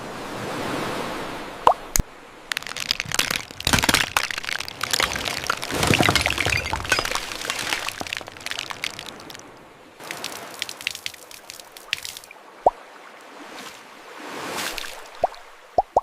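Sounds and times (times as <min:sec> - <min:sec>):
sharp cracks and crackles: 0:01.9 - 0:09.4, 0:10.0 - 0:12.3.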